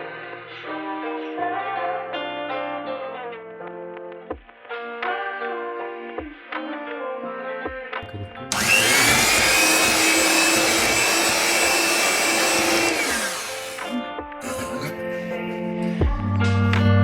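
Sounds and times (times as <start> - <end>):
kitchen mixer motor whining: 8.5 - 13.9.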